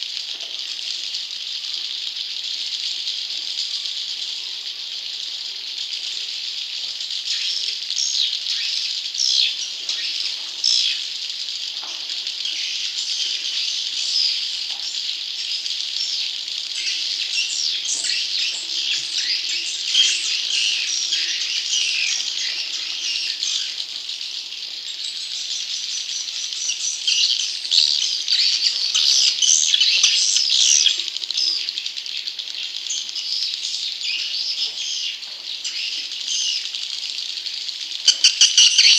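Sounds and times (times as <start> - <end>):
bird chicks chirping: 12.2 - 38.9.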